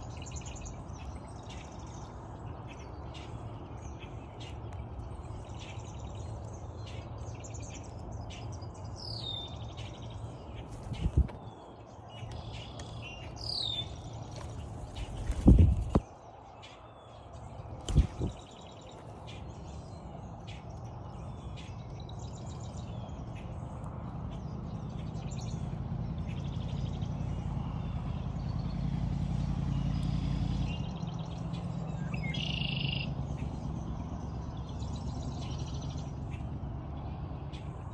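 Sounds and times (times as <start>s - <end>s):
small birds chirping: 0.0s - 37.9s
low rumble: 10.8s - 11.4s.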